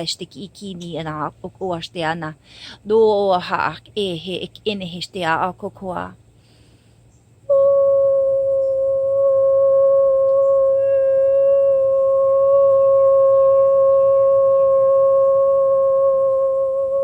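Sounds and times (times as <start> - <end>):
woman holding long note: 7.5 - 17.0.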